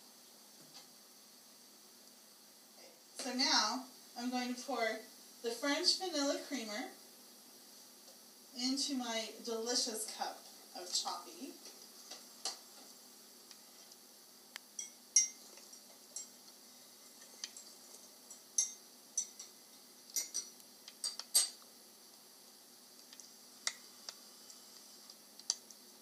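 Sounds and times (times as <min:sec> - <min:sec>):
metal spoon clinking ceramic cup: 0:18.3 - 0:19.5.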